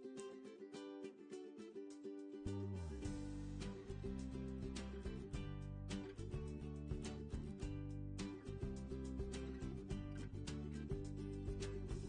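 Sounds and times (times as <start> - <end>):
plucked strings: 0.0 - 12.0
soft regular percussion: 1.3 - 12.0
bass line: 2.5 - 12.0.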